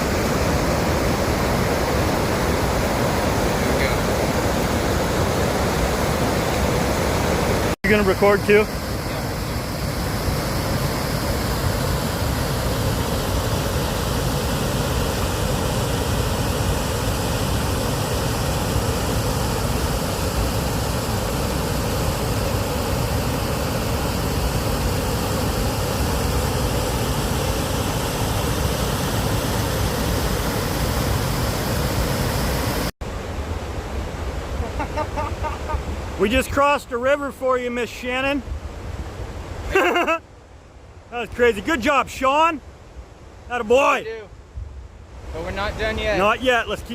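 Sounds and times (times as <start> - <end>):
river rushing over rapids: 0.0 - 34.6.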